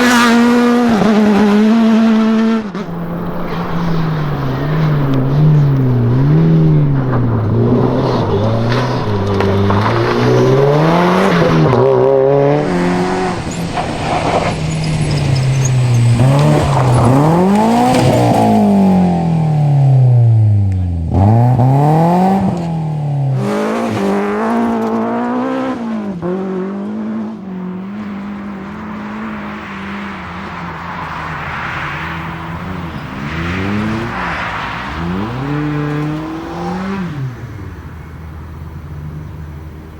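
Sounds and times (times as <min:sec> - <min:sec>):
car passing close: 0:00.0 - 0:39.9
rally car engines revving: 0:00.0 - 0:39.9.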